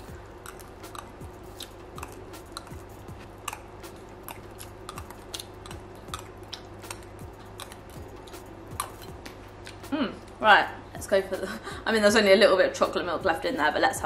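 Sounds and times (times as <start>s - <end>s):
low steady hum: 0.0s - 14.0s
wet chewing: 0.3s - 9.8s.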